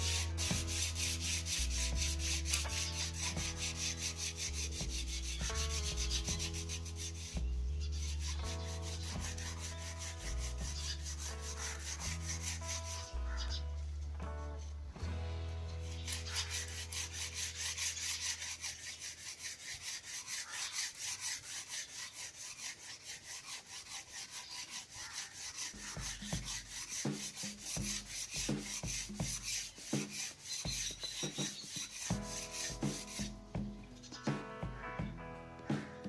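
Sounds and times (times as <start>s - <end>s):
sandpaper rubbing on wood: 0.0s - 13.4s, 15.8s - 33.4s
low thuds: 32.1s - 36.0s.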